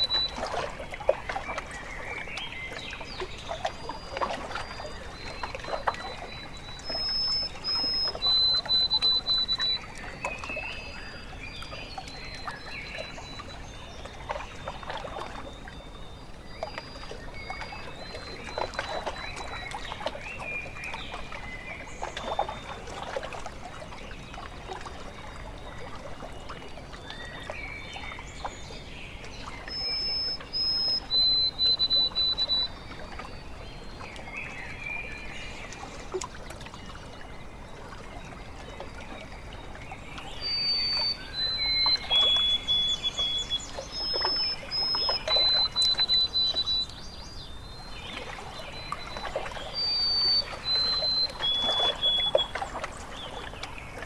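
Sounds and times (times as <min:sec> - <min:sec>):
songbird whistling: 0:00.0 - 0:00.4, 0:05.2 - 0:10.5, 0:29.6 - 0:32.9, 0:40.2 - 0:53.6
lake water lapping: 0:00.0 - 0:54.0.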